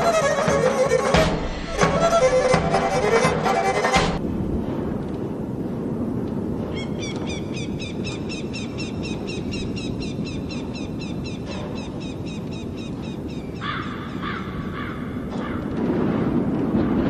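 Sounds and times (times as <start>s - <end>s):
harsh low bird calls: 6.7s - 15.7s.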